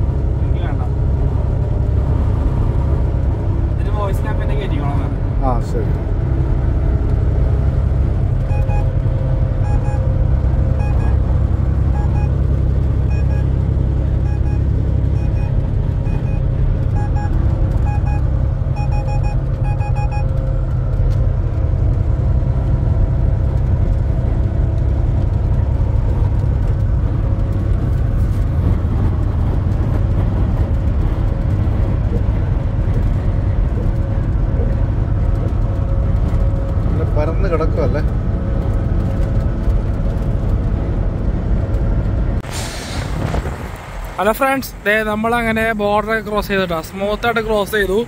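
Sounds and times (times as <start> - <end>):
truck engine and road noise: 0.0 - 48.0
short electronic beeps: 8.4 - 10.1, 10.7 - 11.3, 11.9 - 13.6, 14.2 - 20.4.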